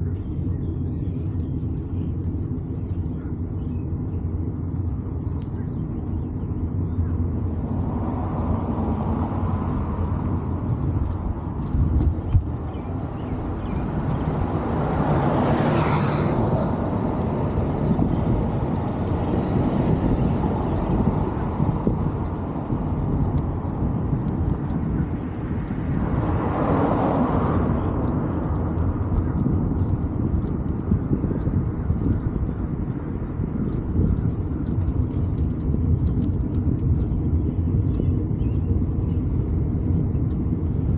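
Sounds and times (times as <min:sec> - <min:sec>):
low rumble of road noise: 0:00.0 - 0:40.9
vehicles passing by: 0:00.0 - 0:40.9.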